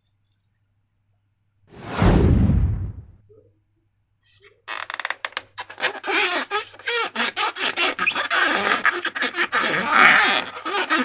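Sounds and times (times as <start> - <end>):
rubbery balloon squeaks: 4.7 - 11.0.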